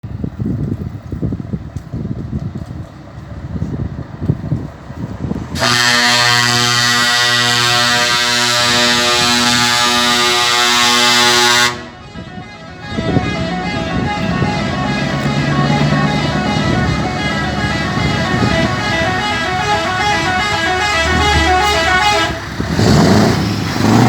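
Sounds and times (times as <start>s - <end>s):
truck engine rumble: 0.0s - 24.0s
truck air horn blast: 5.6s - 23.0s
steady tones: 7.4s - 22.8s.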